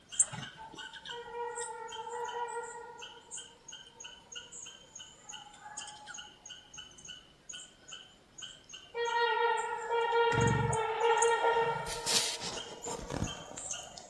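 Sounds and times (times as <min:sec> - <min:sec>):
small bird chirping: 0:10.3 - 0:14.0.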